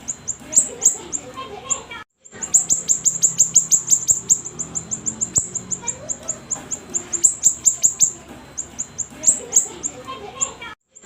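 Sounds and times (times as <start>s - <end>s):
bird singing high downslurred notes: 2.3s - 10.6s.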